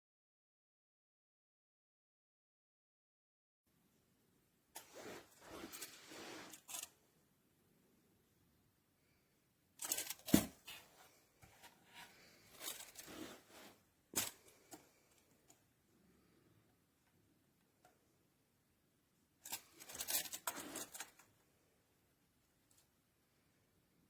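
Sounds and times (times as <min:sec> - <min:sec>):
rustling handling noise: 0:04.8 - 0:07.0, 0:09.8 - 0:15.6, 0:19.4 - 0:21.4.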